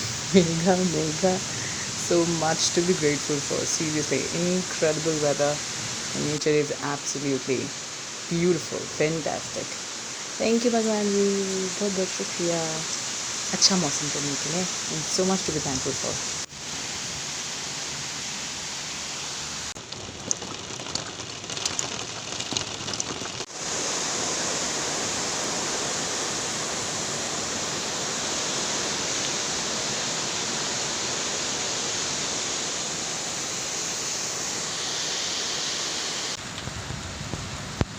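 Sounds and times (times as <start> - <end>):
sharp raindrops striking close: 0.0 - 5.4, 19.7 - 23.6
heavy rain falling: 0.0 - 37.9.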